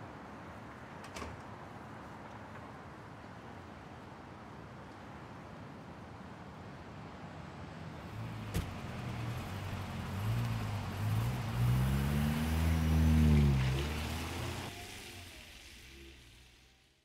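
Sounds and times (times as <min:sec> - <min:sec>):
car engine pulling away: 0:08.0 - 0:17.0.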